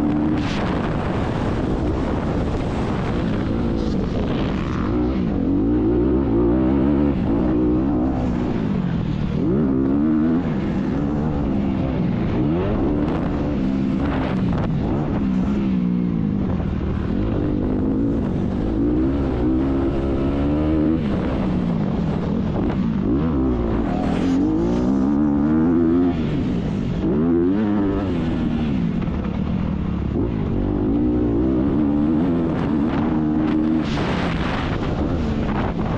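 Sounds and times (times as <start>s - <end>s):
dirt bike engine revving: 0.0s - 15.7s, 16.5s - 28.9s.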